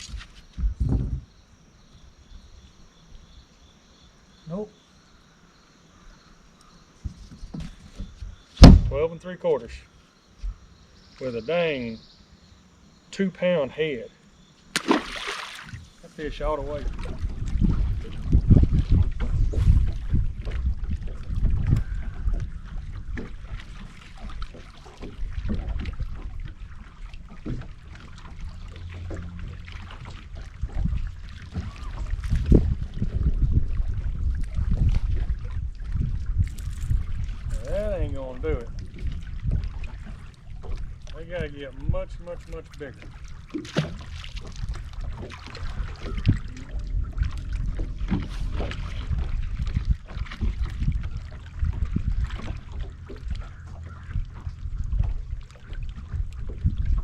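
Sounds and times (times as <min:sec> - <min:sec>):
wind rumbling on microphone: 0:00.0 - 0:01.4, 0:15.7 - 0:57.0
water slapping against boat hull: 0:07.0 - 0:09.1, 0:14.7 - 0:57.0
loud thump: 0:08.6 - 0:09.0
sharp knocks: 0:08.6 - 0:09.0
low hum: 0:26.0 - 0:34.4.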